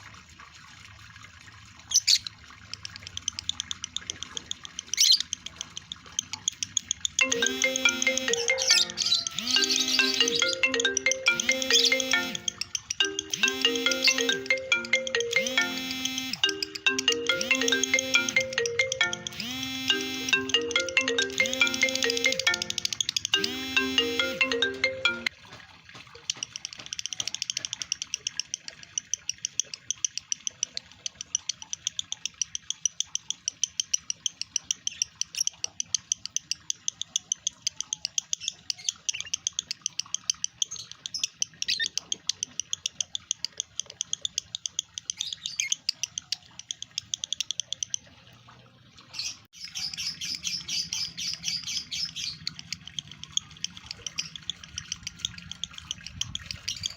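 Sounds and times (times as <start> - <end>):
lovebird chattering chirps: 2.0 - 20.6, 21.2 - 23.7, 26.9 - 48.0, 49.2 - 56.9
melodic chime sequence: 7.2 - 25.3.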